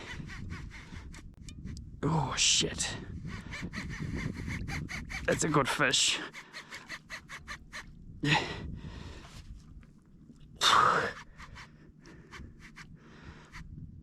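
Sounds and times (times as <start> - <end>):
man panting heavily: 8.2 - 9.3.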